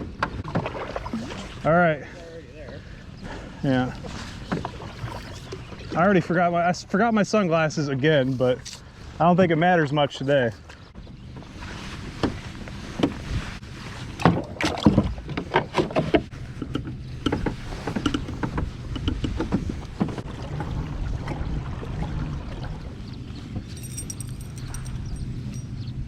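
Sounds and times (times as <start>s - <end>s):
water splashing: 0.4s - 1.8s, 19.2s - 23.4s
knocks against kayak hull: 14.2s - 20.8s.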